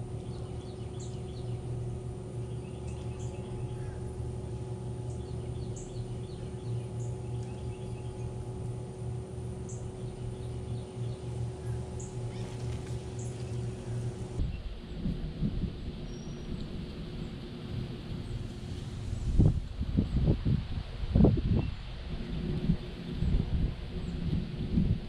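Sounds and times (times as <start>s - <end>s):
birds chirping: 0.0s - 15.1s
steady low hum: 0.0s - 25.0s.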